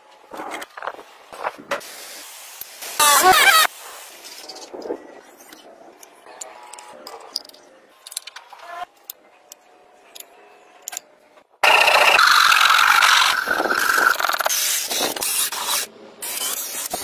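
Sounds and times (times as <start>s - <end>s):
loud harsh tool noise: 11.6s - 17.0s.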